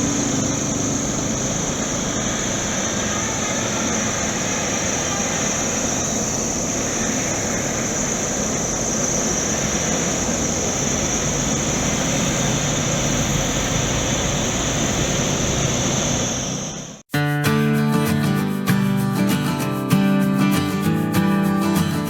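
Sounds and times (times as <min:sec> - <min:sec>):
excavator diesel engine droning: 0:00.0 - 0:17.1
high hiss: 0:00.0 - 0:18.6.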